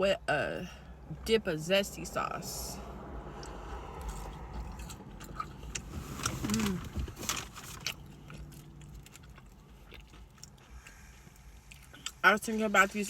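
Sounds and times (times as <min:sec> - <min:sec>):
low steady rumble: 0:00.0 - 0:13.0
crunchy chewing: 0:03.3 - 0:06.8, 0:07.4 - 0:12.2.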